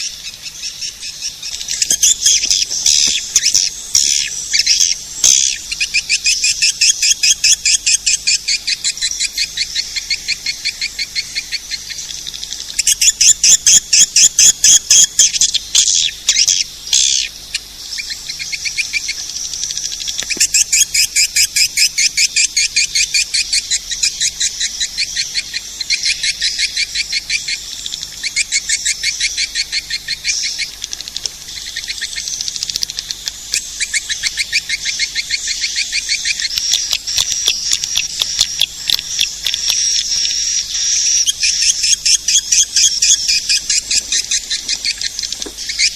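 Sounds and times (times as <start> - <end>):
high rapid bird chirps: 0.0 - 45.9.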